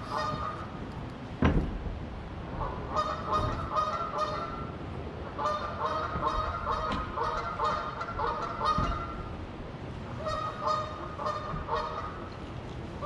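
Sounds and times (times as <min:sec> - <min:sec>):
geese honking: 0:00.0 - 0:00.7, 0:02.6 - 0:04.7, 0:05.4 - 0:09.3, 0:10.1 - 0:12.3.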